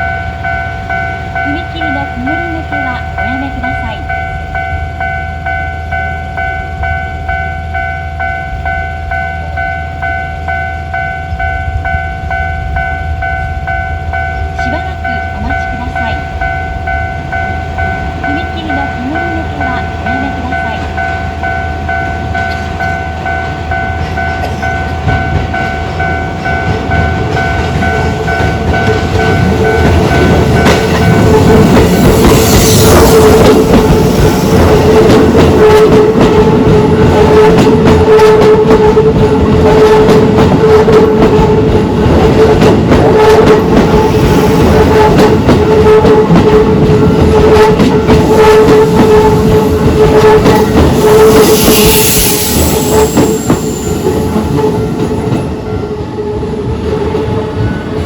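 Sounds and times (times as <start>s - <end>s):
level crossing alarm tone: 0.0s - 56.5s
electric train passing: 0.0s - 58.0s
wheels clacking over rail joints: 17.2s - 49.2s.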